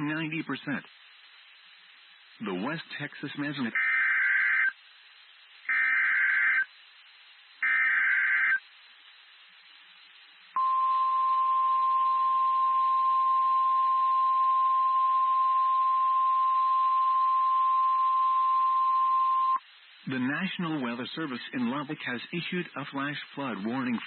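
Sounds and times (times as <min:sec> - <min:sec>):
warbling digital data bursts: 0:07.6 - 0:08.6.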